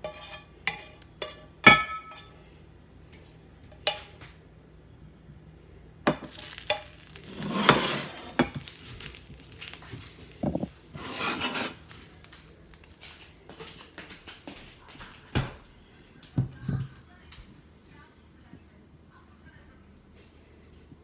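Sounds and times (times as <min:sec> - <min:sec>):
spatula scraping a pan: 0:00.0 - 0:02.5, 0:06.3 - 0:12.5
sharp knocks against a pan: 0:01.7 - 0:02.3.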